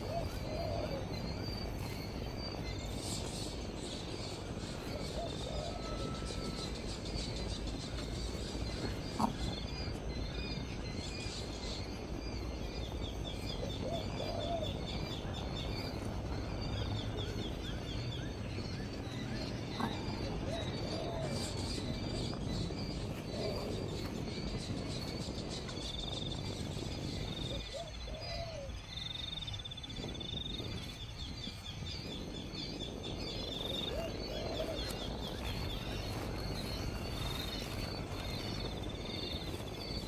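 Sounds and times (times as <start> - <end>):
birds chirping and trilling: 0.0 - 40.0.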